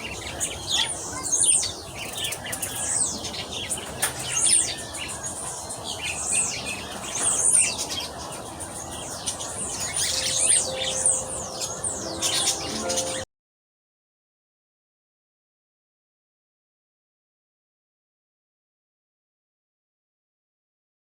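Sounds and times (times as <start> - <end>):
small birds chirping: 0.0 - 13.2.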